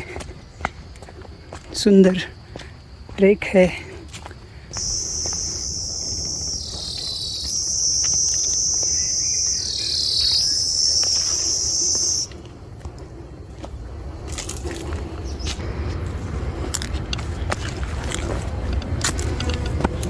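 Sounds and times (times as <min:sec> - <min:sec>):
insect buzzing: 0:04.7 - 0:12.3.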